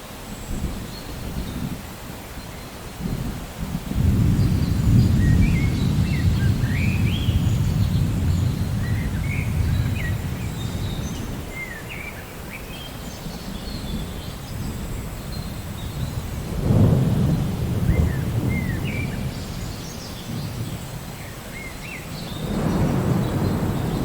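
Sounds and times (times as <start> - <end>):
rain hissing: 0.0 - 24.0
low rolling thunder: 3.0 - 11.6, 13.8 - 21.3, 22.2 - 24.0
songbirds chirping: 4.1 - 24.0.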